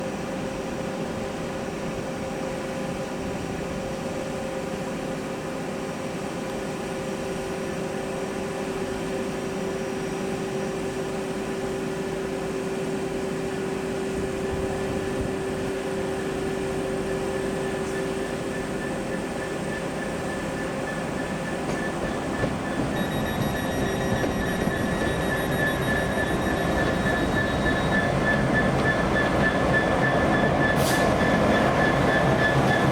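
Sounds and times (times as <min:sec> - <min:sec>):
mechanical hum and hiss: 0:00.1 - 0:27.8
whining tones: 0:18.5 - 0:31.9.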